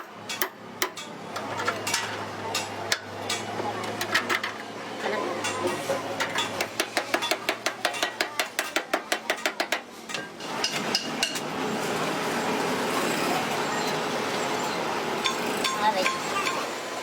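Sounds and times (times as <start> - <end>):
hammer tapping on metal: 6.2 - 9.9.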